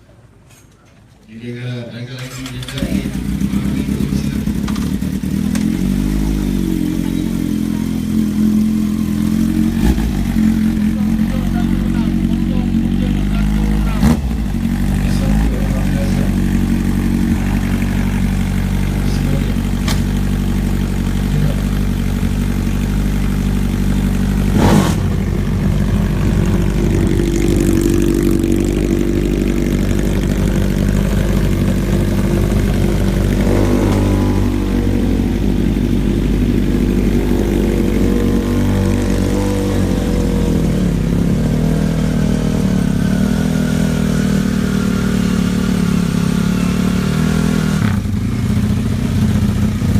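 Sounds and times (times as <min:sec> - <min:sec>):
motorcycle engines idling: 0:00.0 - 0:49.9
sharp crack: 0:19.8 - 0:20.2, 0:24.5 - 0:25.4.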